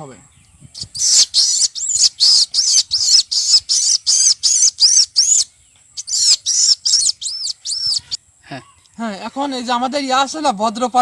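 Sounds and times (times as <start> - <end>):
man imitating bird chirps: 0.7 - 8.8.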